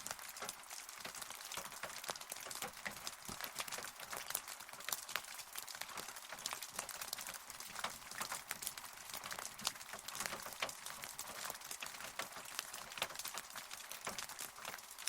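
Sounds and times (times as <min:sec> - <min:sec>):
close raindrops ticking: 0:00.0 - 0:15.0
rain falling: 0:00.0 - 0:15.0.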